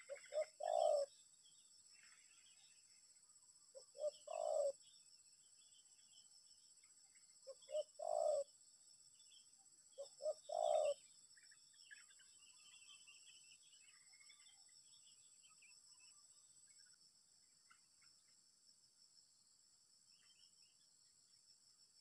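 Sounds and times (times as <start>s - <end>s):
dove cooing: 0.0s - 1.1s, 3.8s - 4.8s, 7.5s - 8.5s, 10.0s - 11.0s.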